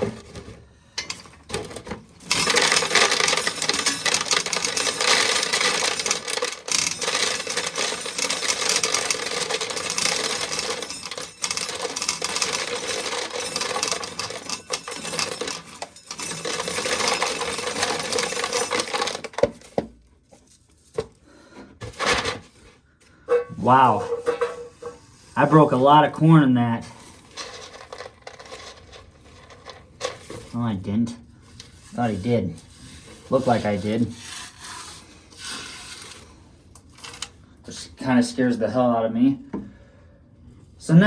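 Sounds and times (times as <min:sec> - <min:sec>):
corn kernels rattling into pail: 0:00.0 - 0:19.8, 0:27.0 - 0:30.6.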